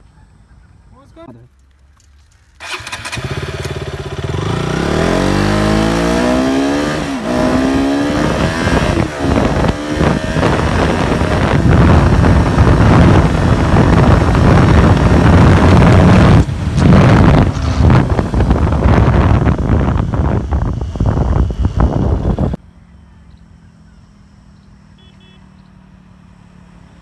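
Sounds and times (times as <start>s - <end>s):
motorcycle engine accelerating: 2.4s - 27.0s
rushing wind noise: 4.2s - 22.6s.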